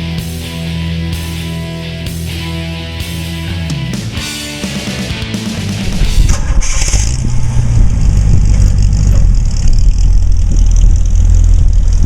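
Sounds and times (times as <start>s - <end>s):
car engine rumbling: 5.2s - 12.0s.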